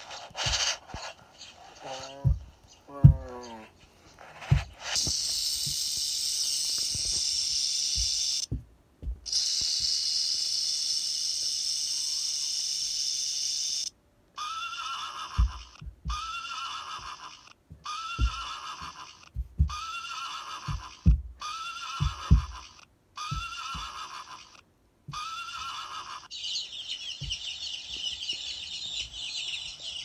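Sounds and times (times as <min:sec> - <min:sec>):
soft low knocks: 0:02.0 - 0:03.7, 0:15.4 - 0:16.3, 0:17.6 - 0:18.5, 0:19.3 - 0:19.9, 0:20.7 - 0:21.4, 0:22.0 - 0:22.7, 0:27.1 - 0:29.2
snake hissing: 0:04.8 - 0:08.4
horse whinnying: 0:14.4 - 0:26.3.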